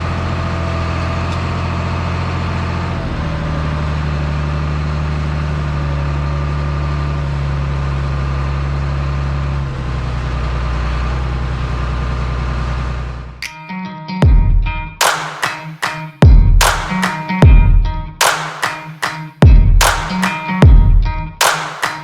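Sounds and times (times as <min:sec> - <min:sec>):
heavy engine running: 0:00.0 - 0:13.4.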